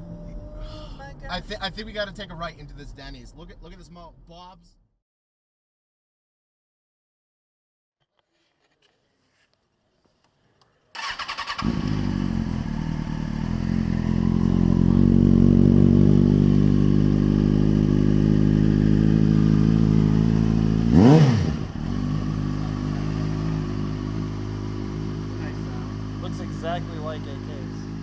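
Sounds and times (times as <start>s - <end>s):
motorcycle engine starting: 10.9s - 28.0s
motorcycle engine idling: 11.0s - 28.0s.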